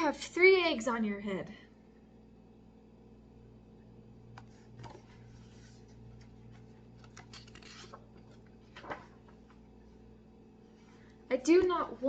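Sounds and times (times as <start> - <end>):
low steady hum: 0.0 - 12.0
paper pages rustling: 4.3 - 9.8.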